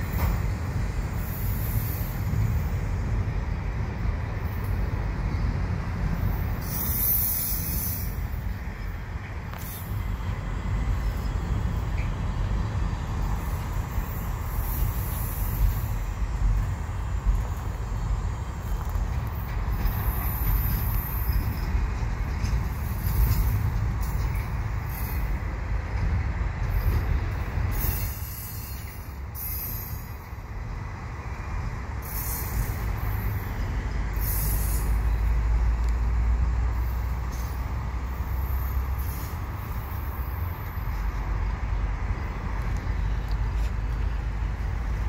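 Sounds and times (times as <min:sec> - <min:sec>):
steel wheels rumbling on rail: 0:00.0 - 0:45.0
high-pitched wheel squeal: 0:27.8 - 0:30.2.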